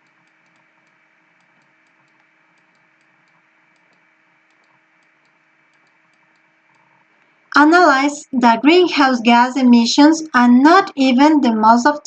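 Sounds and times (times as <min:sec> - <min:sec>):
faint irregular clicks: 0:00.0 - 0:07.4
faint steady hum: 0:00.0 - 0:12.0.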